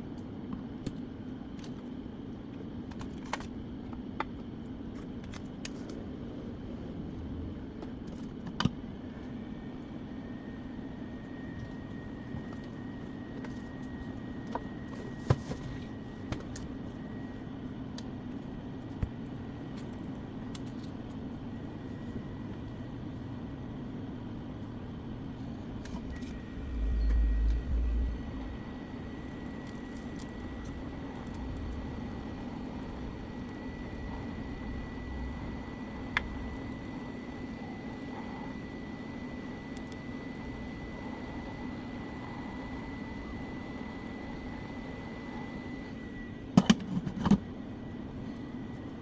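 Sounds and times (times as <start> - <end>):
mechanical hum with high whine: 0.0 - 49.0.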